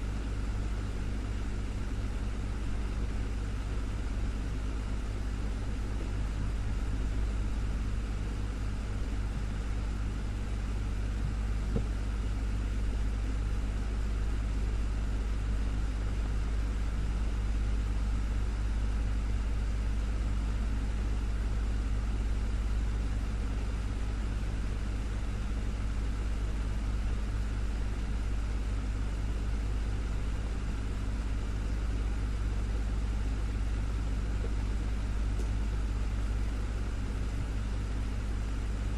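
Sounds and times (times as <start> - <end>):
desktop fan running: 0.0 - 38.9.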